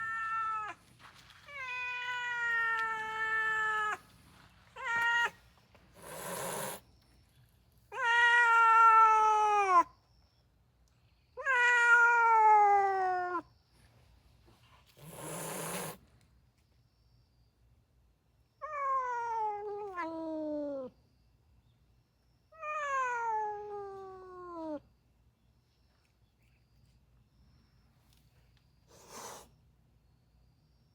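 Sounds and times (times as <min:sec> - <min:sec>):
cat yowling: 0:00.0 - 0:00.8, 0:01.5 - 0:04.0, 0:04.8 - 0:05.4, 0:07.9 - 0:09.9, 0:11.4 - 0:13.5, 0:18.6 - 0:20.9, 0:22.5 - 0:24.8
cat hissing: 0:06.0 - 0:06.8, 0:14.9 - 0:16.0, 0:28.9 - 0:29.6.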